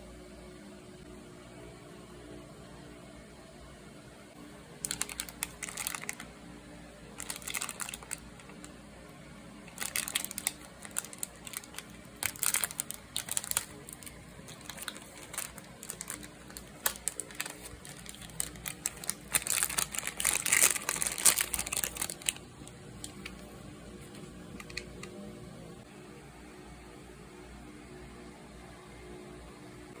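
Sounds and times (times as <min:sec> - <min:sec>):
plastic packaging crinkling: 0:04.8 - 0:06.3, 0:07.2 - 0:08.7, 0:09.7 - 0:25.1.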